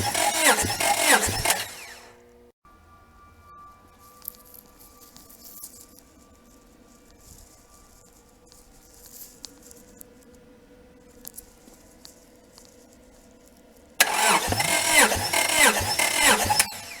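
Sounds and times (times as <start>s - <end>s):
engine cranking on starter: 0.0s - 2.2s, 14.0s - 17.0s.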